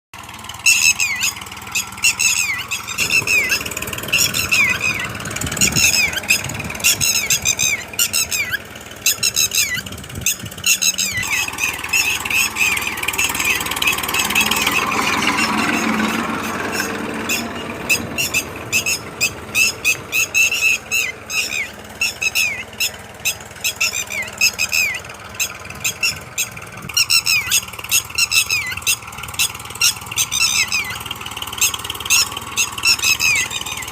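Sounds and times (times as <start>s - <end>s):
chicks chirping: 0.7s - 31.0s
rumbling noise: 2.7s - 22.2s.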